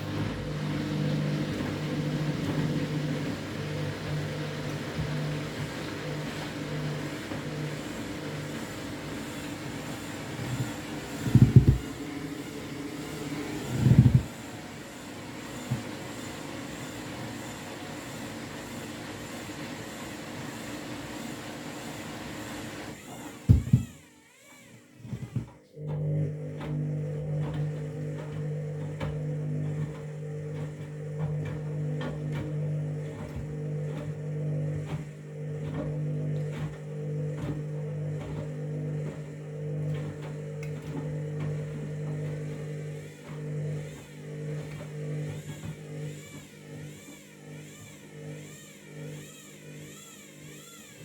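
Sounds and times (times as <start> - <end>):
washing machine motor humming: 0.0 - 51.0
knocks of tumbling load: 10.2 - 12.4, 23.0 - 24.1.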